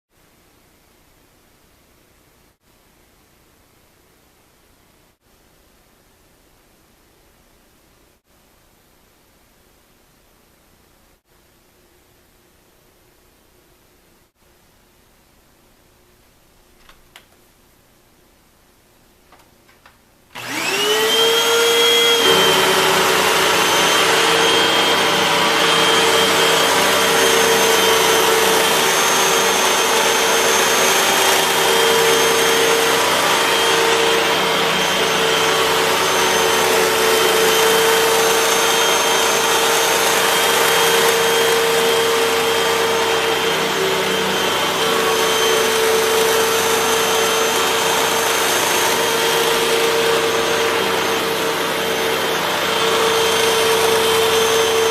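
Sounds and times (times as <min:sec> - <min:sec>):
vacuum cleaner motor whine: 0:20.4 - 0:54.9.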